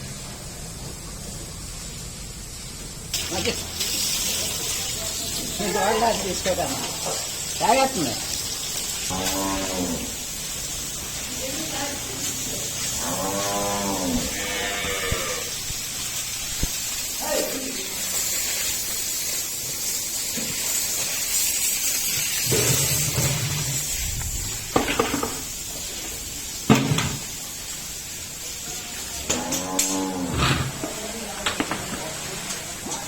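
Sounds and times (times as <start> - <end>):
steady hiss: 0.0 - 33.0
calf bleating: 13.2 - 15.5.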